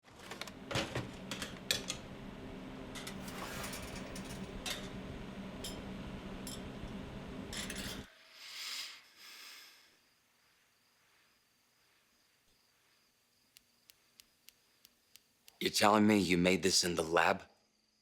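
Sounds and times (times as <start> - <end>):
steady hum: 0.2 - 8.1.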